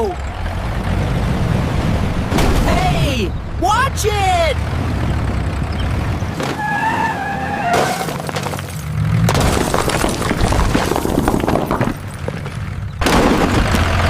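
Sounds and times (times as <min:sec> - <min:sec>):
clattering crash of shattering: 0:07.6 - 0:13.8.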